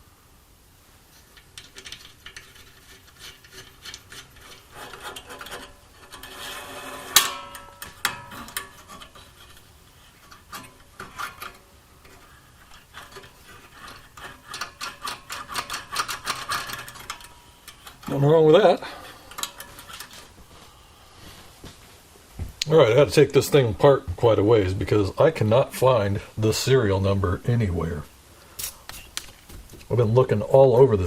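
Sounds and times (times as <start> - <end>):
scraping and rubbing metal parts: 1.1 - 21.6.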